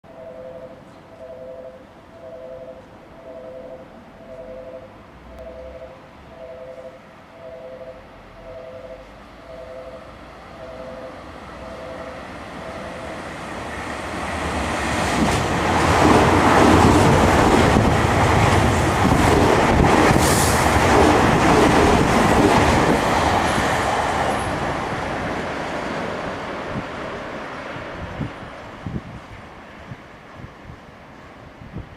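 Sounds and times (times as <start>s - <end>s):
two-note pulsing tone: 0.1s - 13.2s
train wheels rumbling: 8.4s - 31.9s.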